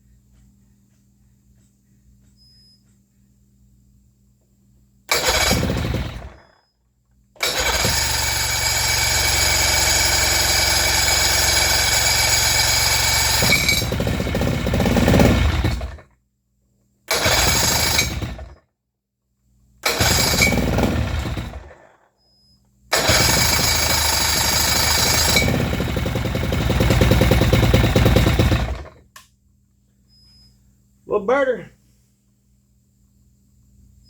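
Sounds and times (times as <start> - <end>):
outboard motor running: 7.5 - 16.0, 19.9 - 21.6, 22.9 - 29.0.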